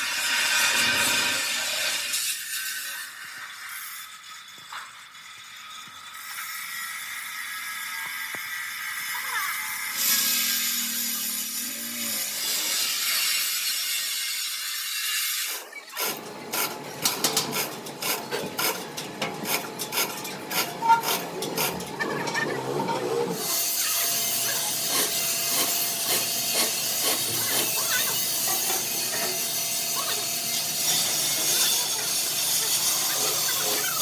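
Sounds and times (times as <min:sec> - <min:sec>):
sharp clicks and knocks: 0:16.0 - 0:23.1.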